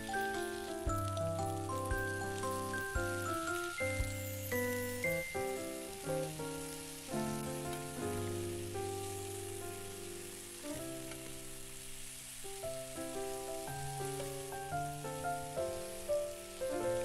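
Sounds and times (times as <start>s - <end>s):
melodic background music: 0.0s - 9.1s
potatoes sizzling in oil: 0.0s - 17.0s.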